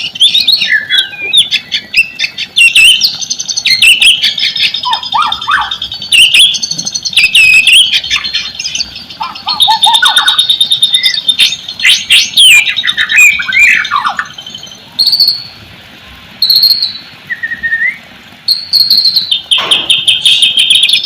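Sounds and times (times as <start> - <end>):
songbird whistling and trilling: 0.0 - 15.6, 16.4 - 21.0.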